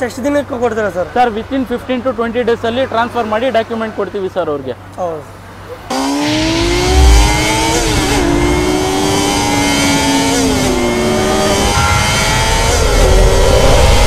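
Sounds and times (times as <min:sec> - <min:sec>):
motorcycle engine accelerating: 0:05.9 - 0:14.0.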